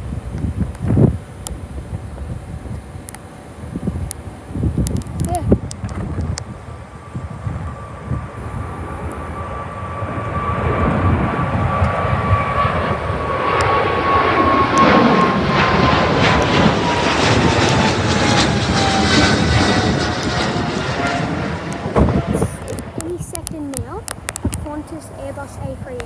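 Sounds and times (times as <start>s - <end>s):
high jet whine: 0.0s - 26.0s
jet engines roaring: 0.0s - 26.0s
wind rumble on microphone: 0.0s - 26.0s.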